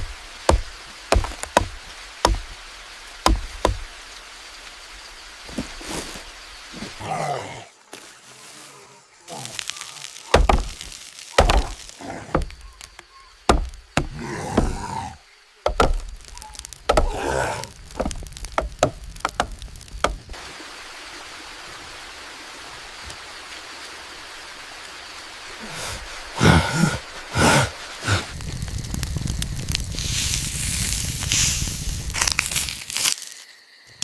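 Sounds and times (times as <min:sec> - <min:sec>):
steady hiss: 0:00.0 - 0:34.0
heavy thuds: 0:10.3 - 0:10.8, 0:11.4 - 0:12.6, 0:13.5 - 0:14.9, 0:15.6 - 0:17.2
tools striking wood: 0:10.3 - 0:10.8, 0:11.4 - 0:12.6, 0:13.5 - 0:14.7, 0:15.6 - 0:16.2, 0:16.9 - 0:17.1.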